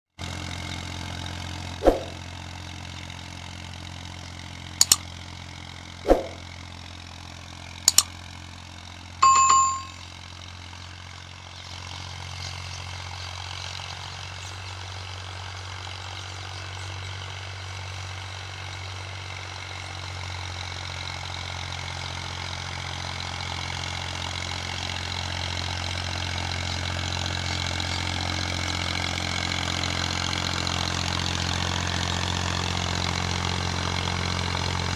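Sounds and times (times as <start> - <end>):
tractor diesel engine running: 0.2 - 34.9
sharp clicks and knocks: 4.8 - 5.0, 7.9 - 8.1
short high ding: 9.2 - 10.1.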